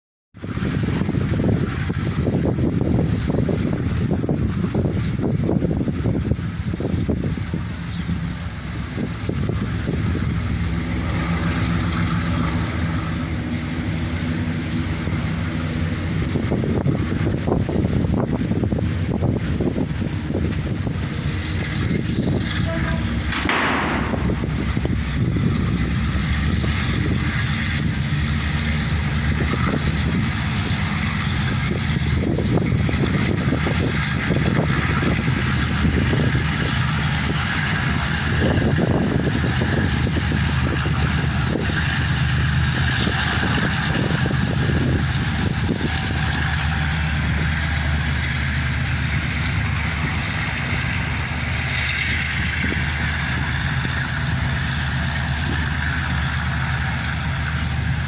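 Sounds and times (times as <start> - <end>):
diesel locomotive engines droning: 0.4 - 58.0.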